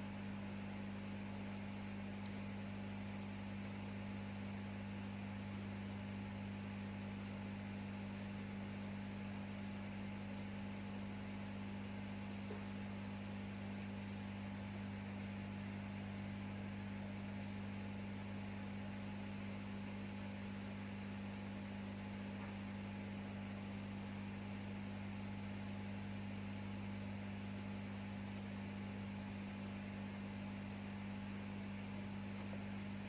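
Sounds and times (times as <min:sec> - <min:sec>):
electrical mains hum: 0:00.0 - 0:33.0.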